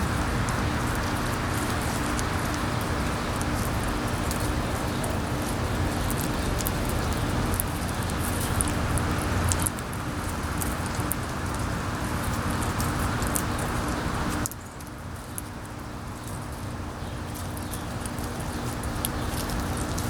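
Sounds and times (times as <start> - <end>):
wind rushing across microphone: 0.0 - 14.5
faint steady hum: 0.0 - 20.0.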